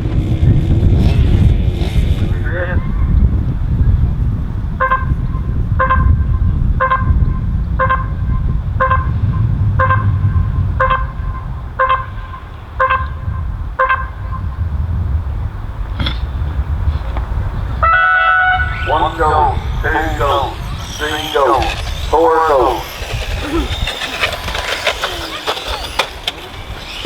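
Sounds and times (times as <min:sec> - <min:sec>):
steady low rumble: 0:00.0 - 0:27.0
electronic timer beeps: 0:04.8 - 0:09.2, 0:10.8 - 0:13.1.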